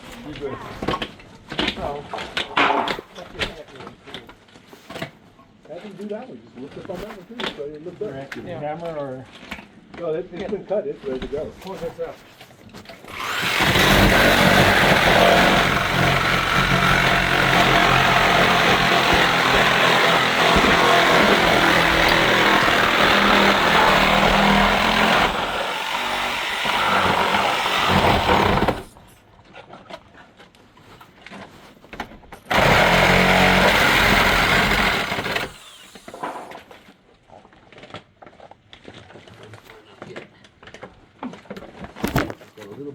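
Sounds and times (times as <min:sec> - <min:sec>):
power saw cutting wood framing: 0:01.6 - 0:03.1, 0:13.0 - 0:29.1, 0:32.5 - 0:36.8.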